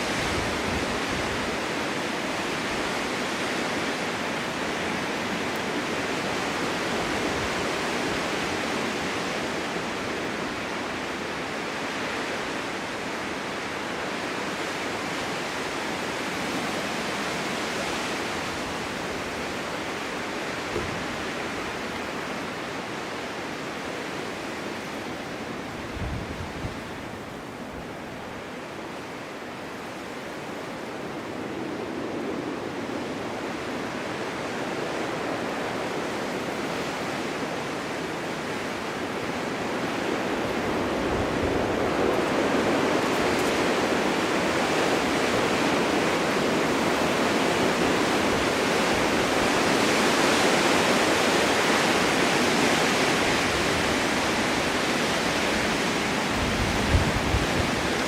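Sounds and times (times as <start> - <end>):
strong wind blowing: 0.0 - 22.0, 25.1 - 58.0
wind buffeting microphone: 25.7 - 27.9, 38.4 - 58.0.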